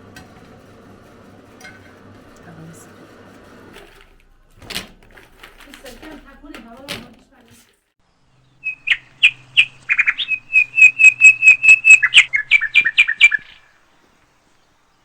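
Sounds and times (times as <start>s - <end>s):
bird singing high chirps: 8.2s - 15.0s.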